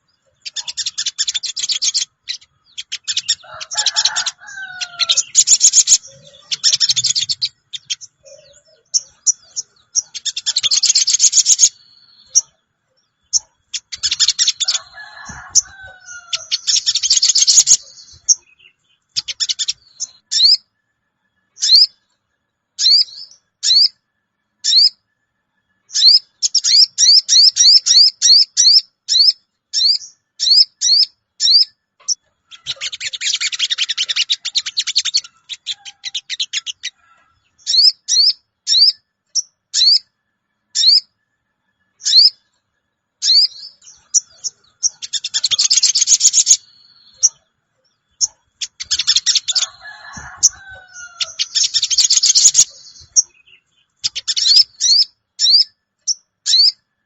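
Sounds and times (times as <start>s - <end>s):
buzzy bird chattering: 0.4s - 12.5s, 13.2s - 18.5s, 19.2s - 20.6s, 25.9s - 37.0s, 43.2s - 47.4s, 48.1s - 56.8s.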